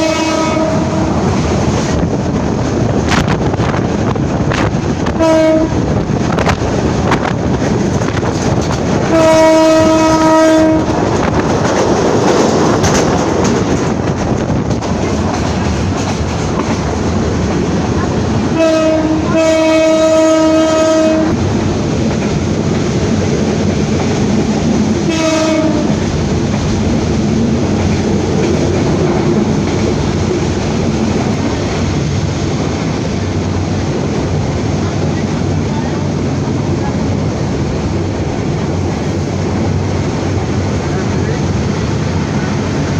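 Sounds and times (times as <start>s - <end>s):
locomotive horn blasts: 0.0s - 1.2s, 5.2s - 5.8s, 9.1s - 11.0s, 18.6s - 21.4s, 25.1s - 26.0s
train rumble and wheel clatter: 0.0s - 42.9s.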